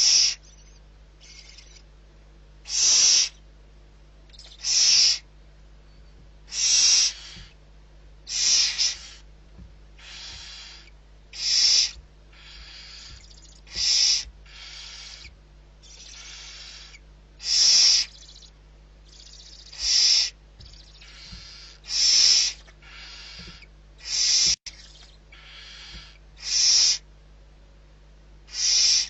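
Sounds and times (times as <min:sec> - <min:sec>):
owl screeching: 0:00.0 - 0:01.8, 0:02.6 - 0:03.4, 0:04.3 - 0:05.3, 0:06.5 - 0:07.6, 0:08.3 - 0:09.3, 0:10.0 - 0:18.5, 0:19.1 - 0:27.0, 0:28.5 - 0:29.0.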